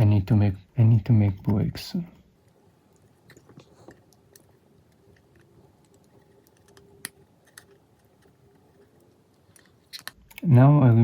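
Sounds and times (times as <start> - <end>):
small tools and parts clicking: 2.4 - 10.4.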